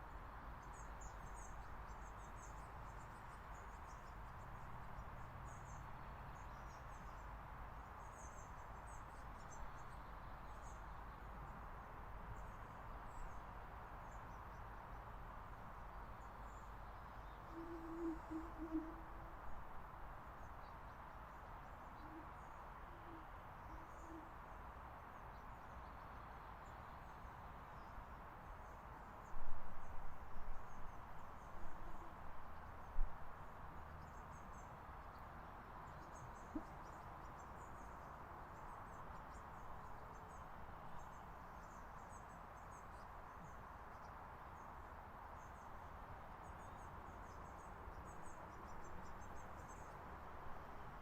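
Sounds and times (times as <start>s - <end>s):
low hooting bird call: 17.5s - 19.3s, 22.0s - 24.3s.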